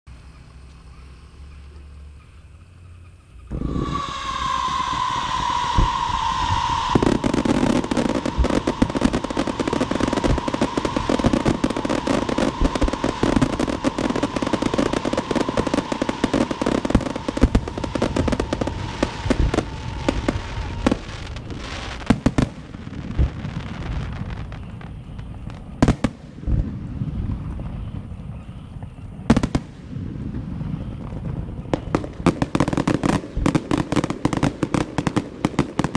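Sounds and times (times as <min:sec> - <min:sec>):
firecrackers crackling: 0:00.2 - 0:35.9
shrill firework whistle: 0:03.4 - 0:26.2, 0:30.7 - 0:35.9
loud firework bangs: 0:03.4 - 0:35.9.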